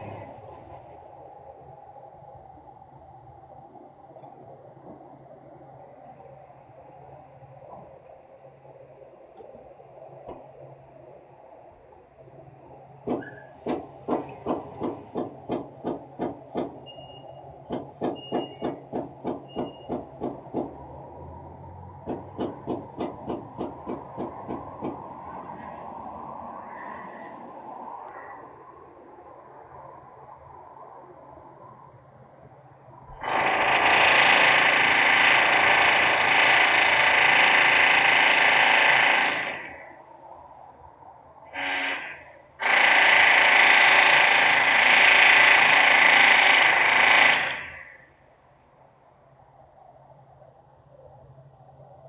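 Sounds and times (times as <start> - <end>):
industrial machinery noise: 0.0 - 27.2, 33.1 - 40.0, 41.5 - 48.2
industrial machinery pounding: 13.0 - 16.9, 17.6 - 20.8, 22.0 - 25.1.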